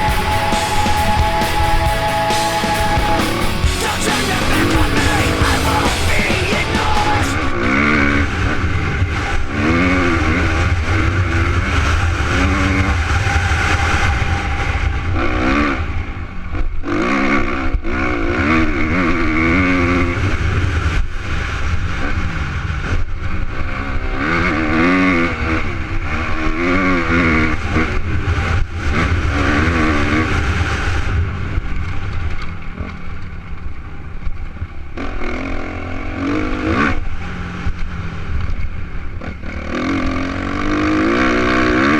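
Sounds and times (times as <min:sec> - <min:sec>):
motocross bike revving: 0:00.0 - 0:13.3, 0:16.8 - 0:22.3, 0:23.5 - 0:32.0, 0:35.0 - 0:41.9.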